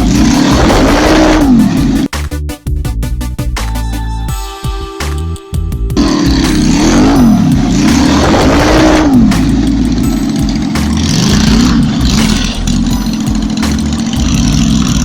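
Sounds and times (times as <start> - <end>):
motorcycle engine revving: 0.0 - 2.1, 6.0 - 15.0
background music: 0.0 - 15.0.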